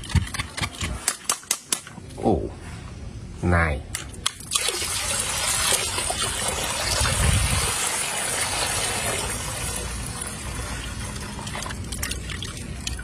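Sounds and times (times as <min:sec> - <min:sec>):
water running and splashing: 0:04.5 - 0:13.0.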